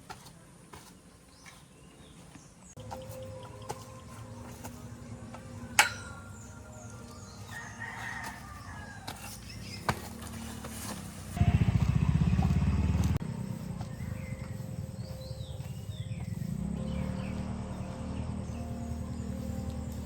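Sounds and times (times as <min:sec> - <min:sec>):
rooster crowing: 0:06.4 - 0:09.6.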